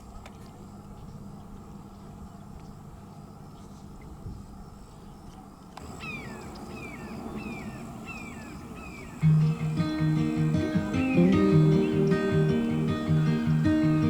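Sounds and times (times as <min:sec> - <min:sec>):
outdoor background noise: 0:00.0 - 0:14.0
bird downward-sliding cries: 0:05.8 - 0:09.8.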